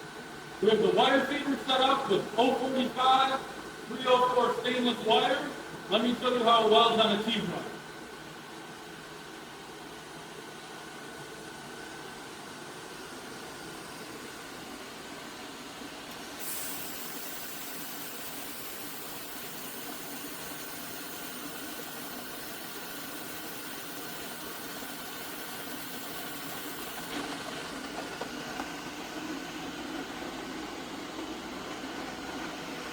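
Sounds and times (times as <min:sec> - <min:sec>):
cooling fans humming: 0:00.0 - 0:32.9
welding torch hissing: 0:16.1 - 0:30.0.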